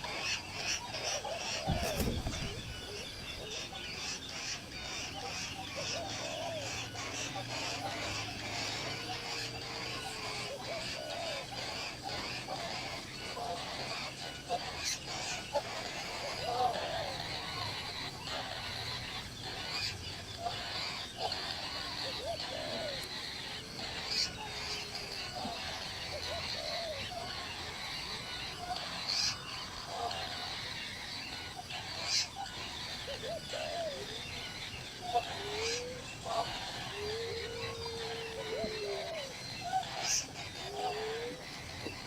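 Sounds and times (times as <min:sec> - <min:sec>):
birds chirping: 0:00.0 - 0:42.0
steady background hiss: 0:00.0 - 0:42.0.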